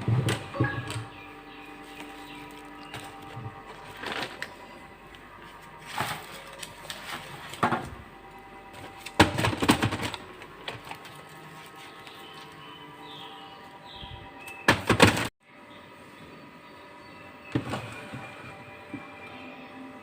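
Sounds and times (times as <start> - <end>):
objects clattering and knocking: 0.0 - 8.1, 8.7 - 11.8, 14.6 - 15.3, 17.5 - 19.1
soft background music: 0.0 - 14.7, 15.4 - 20.0.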